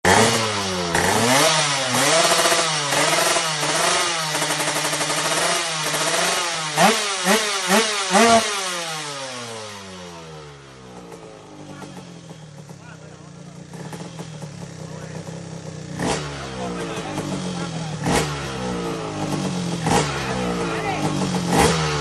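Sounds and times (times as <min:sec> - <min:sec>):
two-stroke motorcycle engine revving: 0:00.0 - 0:22.0.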